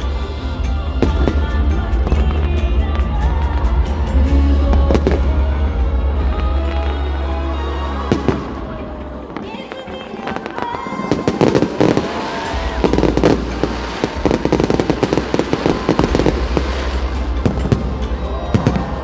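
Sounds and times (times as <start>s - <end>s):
fireworks crackling and popping: 0.0s - 19.0s
fireworks whistling: 8.1s - 19.0s.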